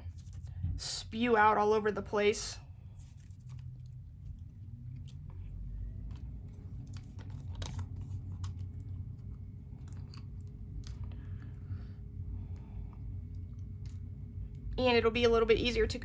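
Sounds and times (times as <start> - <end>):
low steady hum: 0.0 - 16.0
craft materials clicking and rustling: 3.0 - 11.1.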